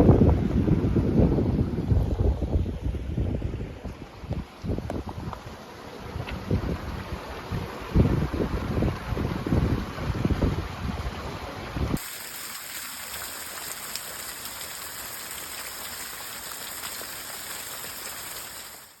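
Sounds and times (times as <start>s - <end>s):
wind buffeting microphone: 0.0s - 5.4s, 6.1s - 12.0s
running water rushing: 8.6s - 19.0s.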